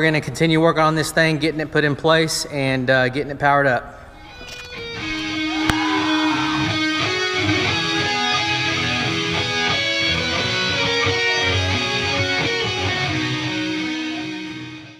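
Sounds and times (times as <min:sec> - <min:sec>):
strummed electric guitar: 0:04.2 - 0:14.9.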